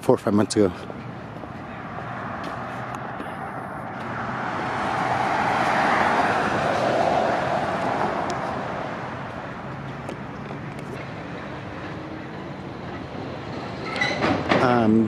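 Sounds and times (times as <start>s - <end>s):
vehicle driving past: 0.8s - 14.1s.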